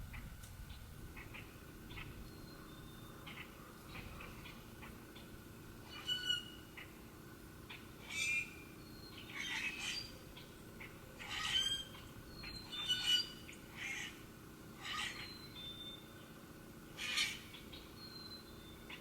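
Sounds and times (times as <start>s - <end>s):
harsh bird calls: 7.7s - 14.2s, 14.8s - 16.1s, 16.9s - 19.0s.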